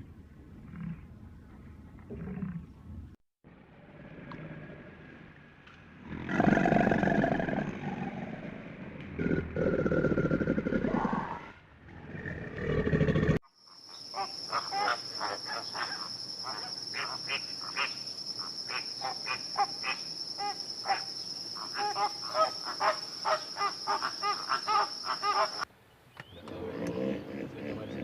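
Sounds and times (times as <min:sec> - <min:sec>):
low animal sound: 0:06.0 - 0:13.4, 0:26.4 - 0:28.0.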